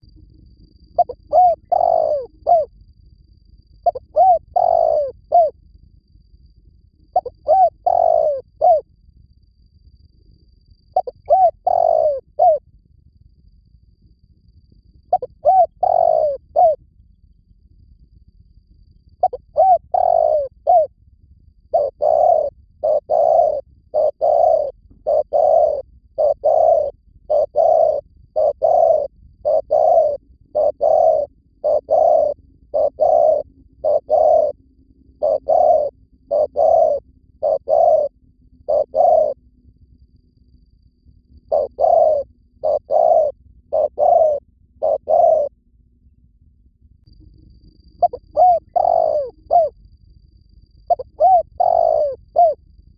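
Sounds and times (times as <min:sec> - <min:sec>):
dove cooing: 0:01.0 - 0:02.7, 0:03.8 - 0:05.6, 0:07.1 - 0:08.8, 0:10.9 - 0:12.6, 0:15.1 - 0:16.8, 0:19.2 - 0:20.9, 0:21.7 - 0:39.4, 0:41.4 - 0:45.5, 0:48.0 - 0:49.8, 0:50.9 - 0:52.6
faint high chirps: 0:21.7 - 0:34.6, 0:35.2 - 0:39.4.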